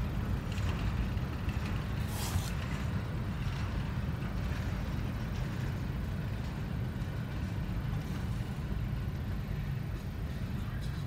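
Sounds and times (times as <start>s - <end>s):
freight train rumbling past: 0.0s - 11.0s.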